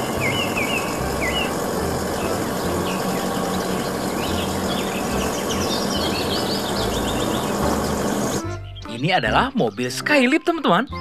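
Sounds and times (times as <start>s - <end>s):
outdoor background noise: 0.0s - 8.5s
small birds chirping: 0.0s - 11.0s.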